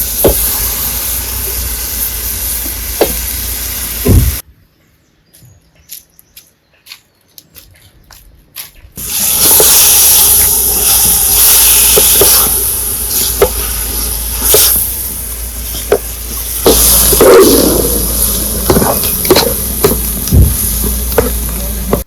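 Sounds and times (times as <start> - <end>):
food sizzling in a hot pan: 0.0 - 4.4, 9.0 - 22.0
sharp pops: 0.0 - 4.4, 9.0 - 22.0.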